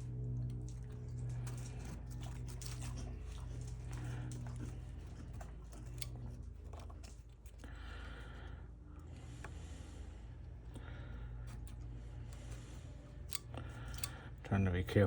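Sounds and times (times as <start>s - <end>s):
steady low hum: 0.0s - 15.0s
small tools clicking and scraping: 0.3s - 8.2s, 10.6s - 14.4s.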